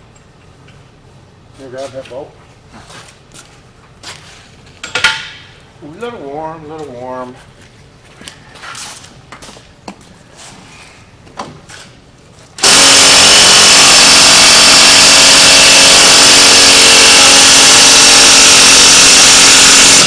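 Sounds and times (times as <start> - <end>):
impact wrench hammering: 12.6 - 20.0.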